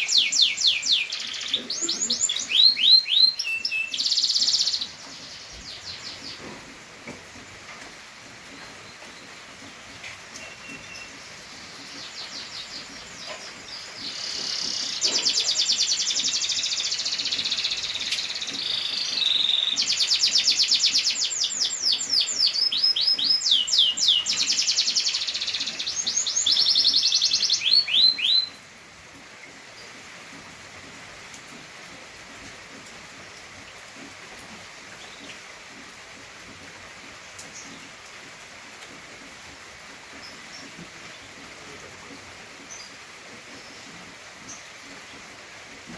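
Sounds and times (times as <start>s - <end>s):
canary singing trills: 0.0s - 6.4s, 10.4s - 28.6s.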